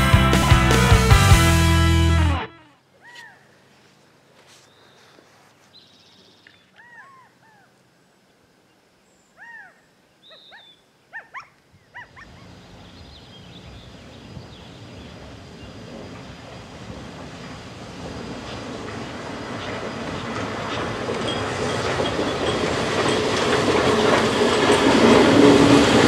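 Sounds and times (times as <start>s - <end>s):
wild bird calls: 2.6s - 3.9s, 4.5s - 7.9s, 9.1s - 16.7s.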